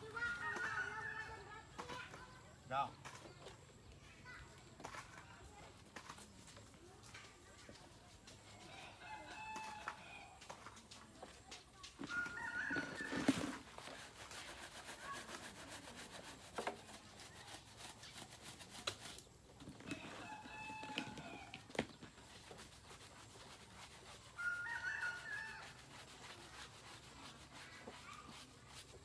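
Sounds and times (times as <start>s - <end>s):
rooster crowing: 12.1s - 13.4s, 20.0s - 21.6s, 24.4s - 25.8s.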